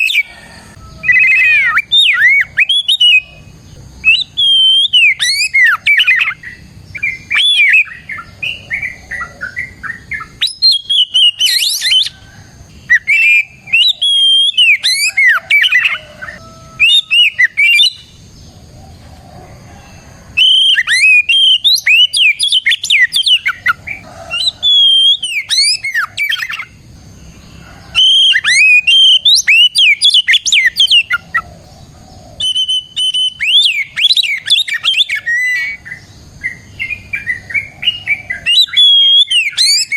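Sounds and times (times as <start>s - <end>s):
bird singing whistled song: 0.0s - 12.2s, 12.8s - 18.5s, 20.3s - 26.8s, 27.9s - 31.4s, 32.3s - 39.9s.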